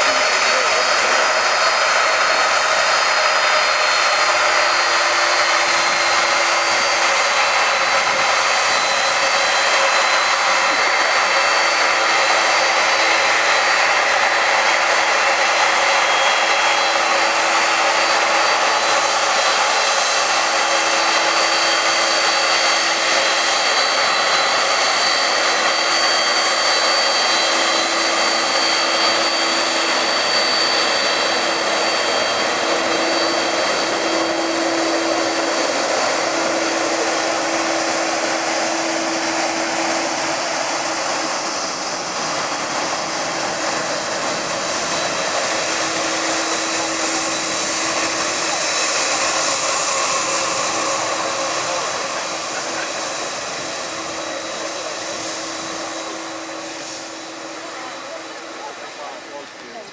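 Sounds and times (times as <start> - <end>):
jet engines running: 0.0 - 59.9.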